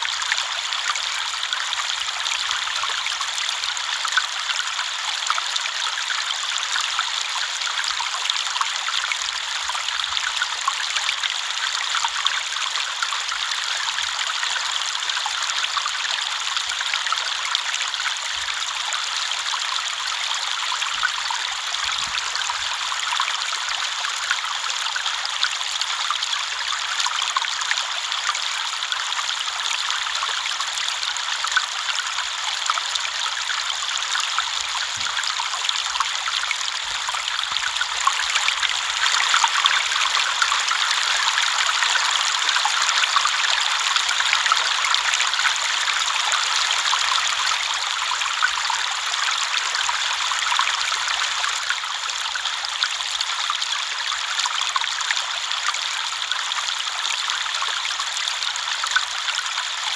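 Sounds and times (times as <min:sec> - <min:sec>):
river water babbling: 0:19.5 - 0:59.6.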